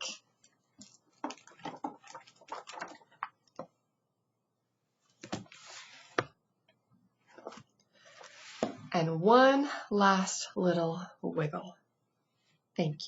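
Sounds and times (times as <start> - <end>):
pages rustling: 0.4 - 3.6, 5.0 - 6.3, 7.3 - 8.8
book pages flapping: 0.8 - 3.6, 5.1 - 6.3.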